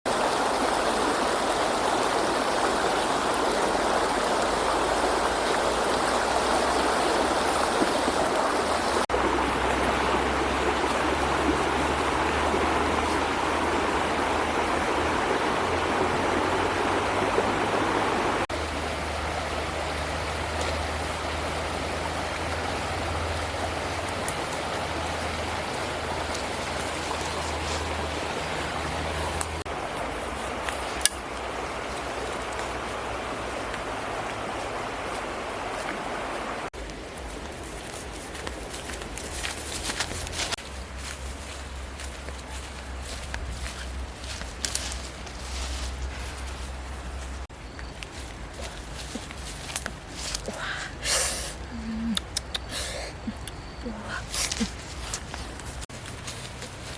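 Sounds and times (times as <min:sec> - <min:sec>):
running water rushing: 0:00.1 - 0:56.9.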